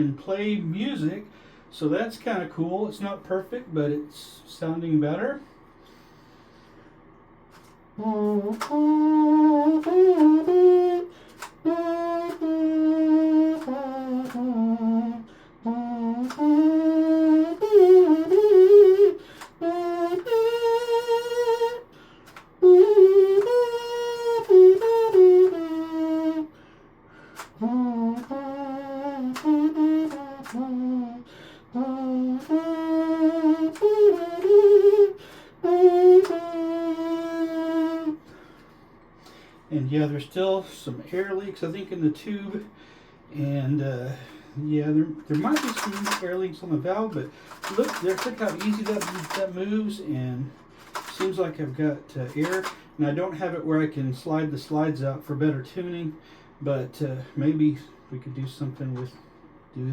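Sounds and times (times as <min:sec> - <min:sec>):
pocket trumpet melody: 0:07.6 - 0:38.4, 0:45.3 - 0:46.5, 0:47.1 - 0:49.6, 0:50.4 - 0:52.8.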